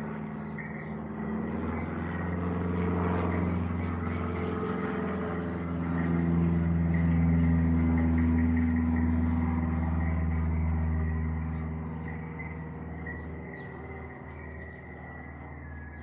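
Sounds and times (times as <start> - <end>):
passing engine drone: 0.0 - 16.0
faint bird chirps: 11.5 - 16.0.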